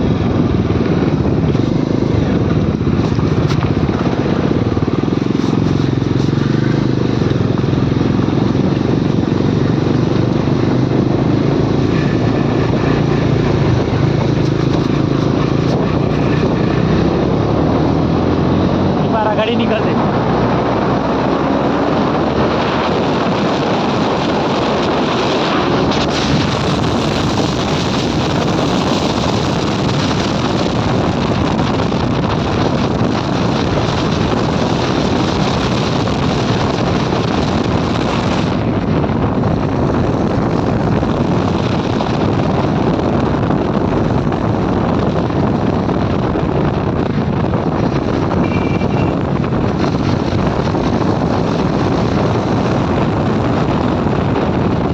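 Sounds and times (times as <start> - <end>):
motorcycle engine: 0.0 - 54.9
road noise: 0.0 - 54.9
wind rushing on microphone: 0.0 - 54.9.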